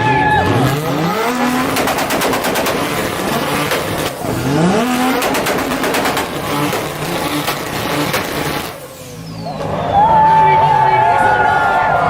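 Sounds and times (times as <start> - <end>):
sports car engine revving: 0.0 - 10.0
exhaust pops and crackles: 0.3 - 9.7.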